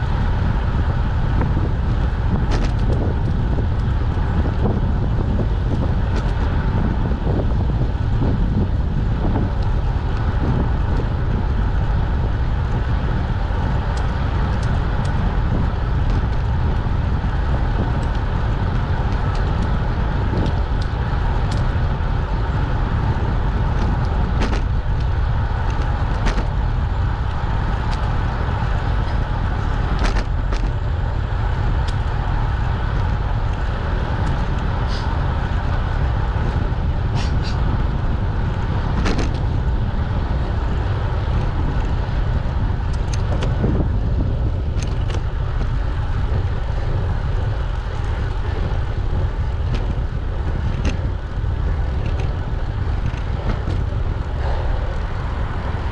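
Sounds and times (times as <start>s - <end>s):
wind rumble on microphone: 0.0s - 55.9s
sharp clicks and rattles: 13.8s - 37.8s, 38.5s - 39.6s, 40.4s - 55.9s.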